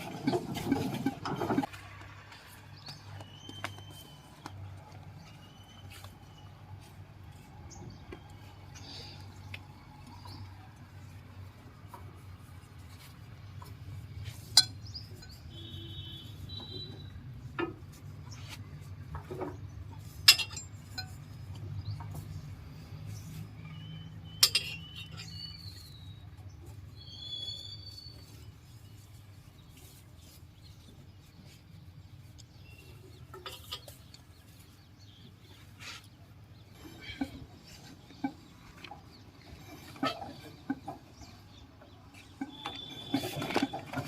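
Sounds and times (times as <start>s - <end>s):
metallic clinks and knocks: 20.2s - 21.3s, 24.4s - 25.4s
high bird chirps: 23.7s - 26.2s, 26.9s - 28.4s.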